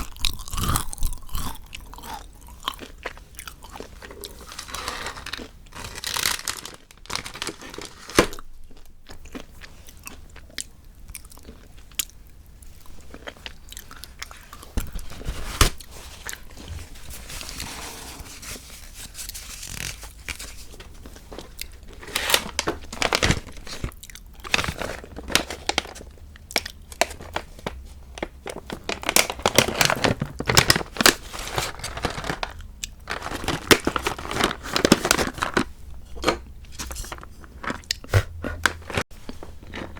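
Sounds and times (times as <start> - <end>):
chocolate crunching: 0.0 - 15.2, 19.6 - 39.9
chewing: 9.2 - 14.8.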